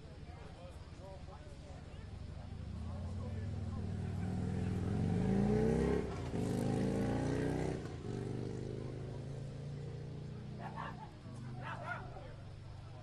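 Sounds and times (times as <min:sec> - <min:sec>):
vehicle engine accelerating: 0:02.6 - 0:10.6.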